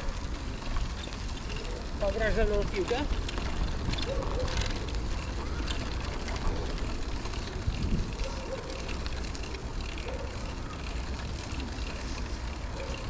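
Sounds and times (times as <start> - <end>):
wind rumble on microphone: 0.0 - 9.4
bicycle tyre noise: 0.0 - 13.0.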